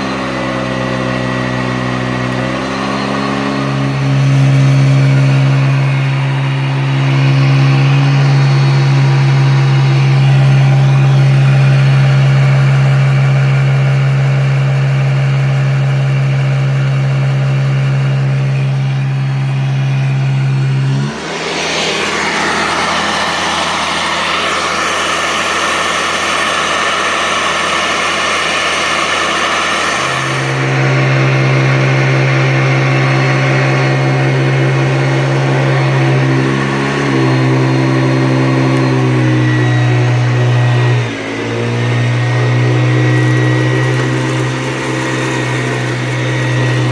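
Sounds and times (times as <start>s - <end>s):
upright vacuum cleaner running: 0.0s - 46.9s.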